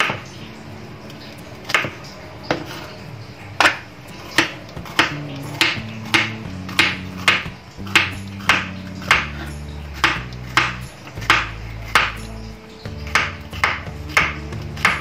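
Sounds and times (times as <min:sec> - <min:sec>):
soft background music: 0:00.0 - 0:15.0
knife chopping on wooden board: 0:03.6 - 0:12.3, 0:12.9 - 0:15.0.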